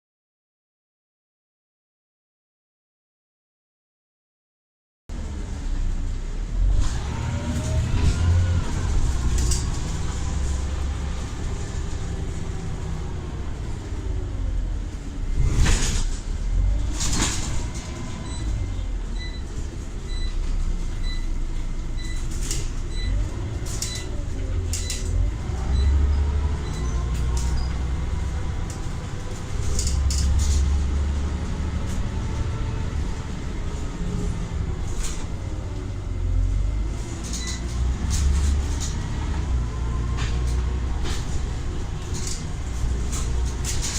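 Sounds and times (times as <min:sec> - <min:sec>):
diesel engine rumble: 0:05.1 - 0:43.9.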